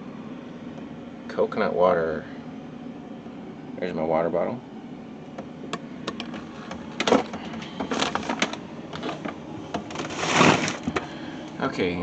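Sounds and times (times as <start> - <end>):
food containers clicking and rustling: 6.1 - 11.1.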